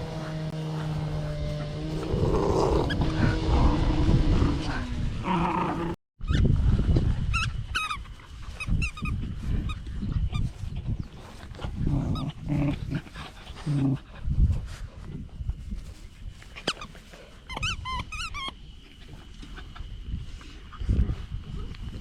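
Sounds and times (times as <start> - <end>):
puppies grunting and growling: 0.0 - 6.0, 11.0 - 14.3.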